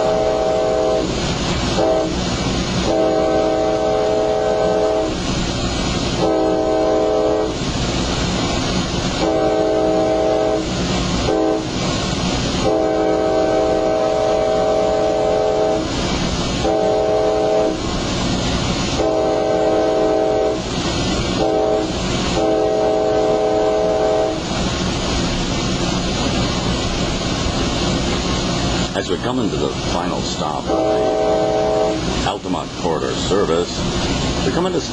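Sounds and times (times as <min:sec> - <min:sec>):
train horn blasts: 0:00.0 - 0:02.2, 0:02.8 - 0:05.2, 0:06.2 - 0:07.6, 0:09.2 - 0:11.8, 0:12.6 - 0:15.9, 0:16.6 - 0:17.8, 0:18.9 - 0:20.7, 0:21.4 - 0:24.5, 0:30.6 - 0:32.1
train rumbling on rails: 0:00.0 - 0:34.9.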